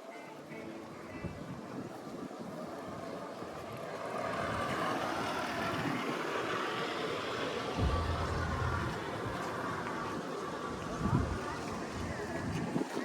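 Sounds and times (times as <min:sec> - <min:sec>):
vehicle rushing noise: 0:07.8 - 0:09.9.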